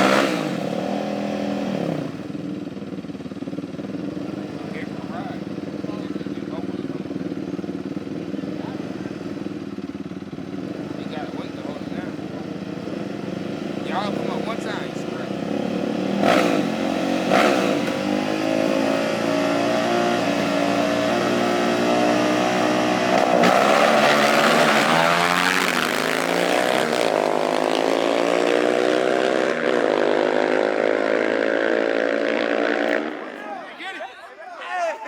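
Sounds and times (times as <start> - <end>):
racing engine accelerating: 0.0 - 2.2, 12.6 - 33.4.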